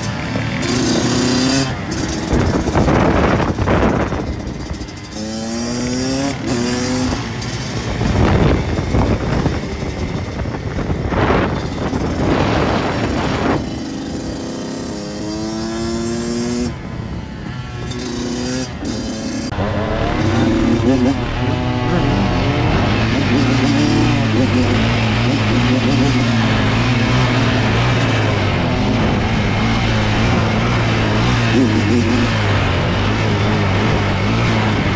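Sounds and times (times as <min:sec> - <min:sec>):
dirt bike engines revving: 0:00.0 - 0:34.9
rushing noise: 0:16.7 - 0:34.9.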